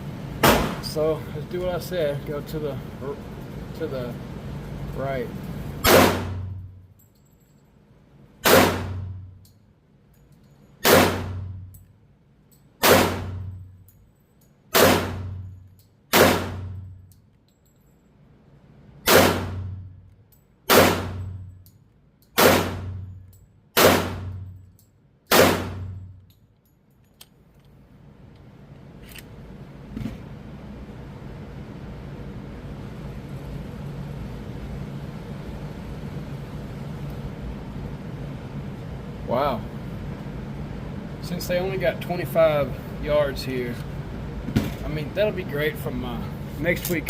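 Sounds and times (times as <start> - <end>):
pistol shots echoing indoors: 0.4 - 0.8, 5.8 - 6.6, 8.4 - 9.3, 10.8 - 11.7, 12.8 - 13.6, 14.7 - 15.4, 16.1 - 16.9, 19.0 - 19.9, 20.6 - 21.5, 22.2 - 23.1, 23.7 - 24.6, 25.2 - 26.2.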